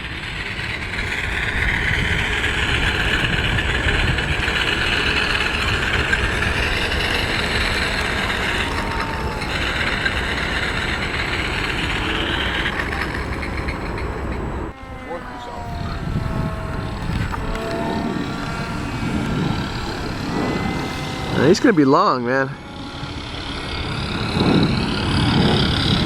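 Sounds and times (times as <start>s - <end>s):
model airplane motor whine: 0.0s - 26.0s
wind rumble on microphone: 0.0s - 26.0s.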